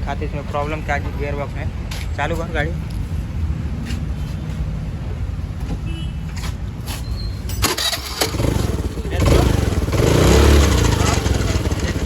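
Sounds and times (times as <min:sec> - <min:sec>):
scooter engine idling: 0:07.6 - 0:12.0.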